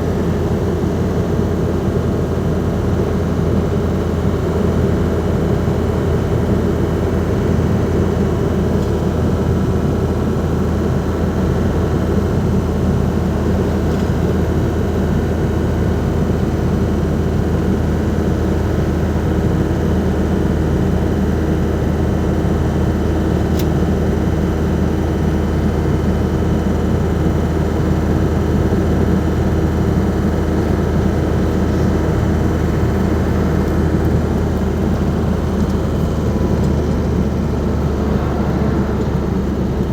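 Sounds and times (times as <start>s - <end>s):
diesel van engine running: 0.0s - 39.9s
road noise: 30.0s - 39.9s.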